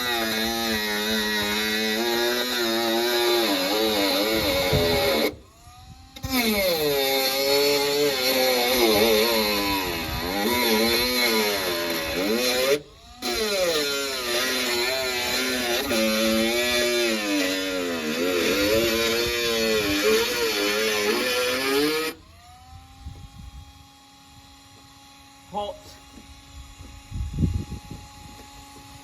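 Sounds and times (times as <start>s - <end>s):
rotary tool cutting sheet metal: 0.0s - 22.2s.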